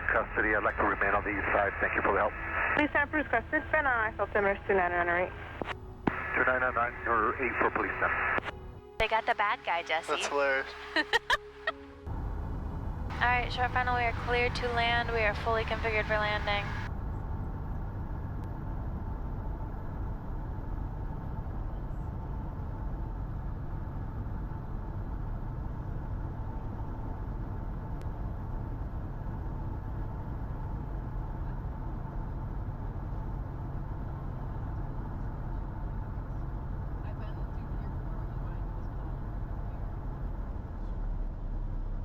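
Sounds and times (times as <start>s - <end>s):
small airplane engine running: 10.1s - 42.0s.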